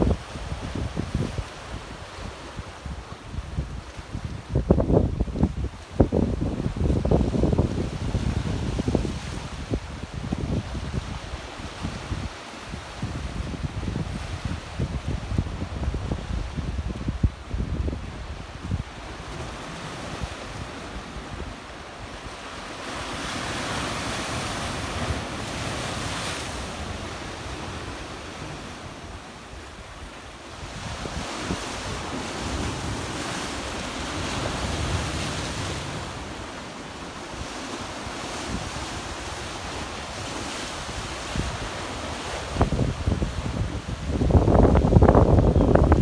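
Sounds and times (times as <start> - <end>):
wind rumble on microphone: 0.0 - 21.6, 37.4 - 46.0.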